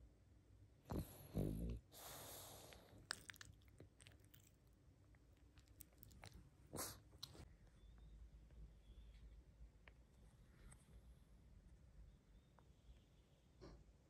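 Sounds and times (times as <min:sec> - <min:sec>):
dog snorting: 0:00.9 - 0:04.5, 0:05.8 - 0:07.4
mouth clicks and smacks: 0:02.9 - 0:07.4.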